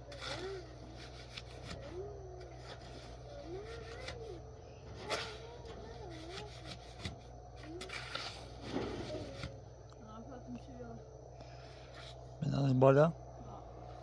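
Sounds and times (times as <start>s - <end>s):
faint wavering voice-like tones: 0.0s - 6.8s
steady low hum: 0.0s - 14.0s
scraping and rubbing strokes: 0.1s - 4.3s, 7.8s - 9.6s.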